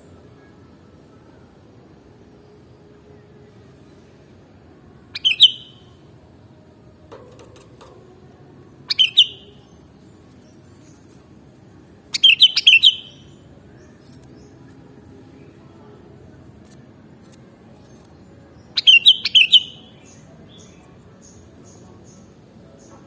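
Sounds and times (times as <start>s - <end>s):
low steady background noise: 0.0s - 23.0s
bird singing quick notes: 5.2s - 5.8s, 8.9s - 9.6s, 12.1s - 13.3s, 18.8s - 20.2s.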